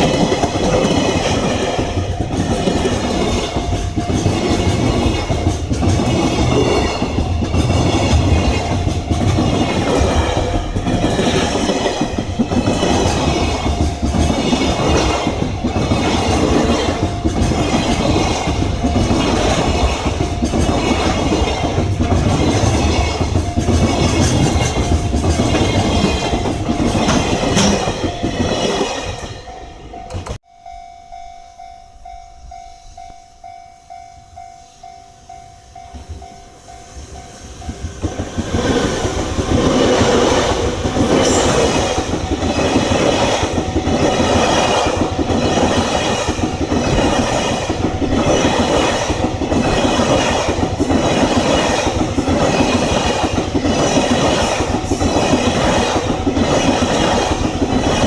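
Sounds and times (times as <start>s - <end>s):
train wheels clattering over rail joints: 0.0s - 30.4s, 37.6s - 58.0s.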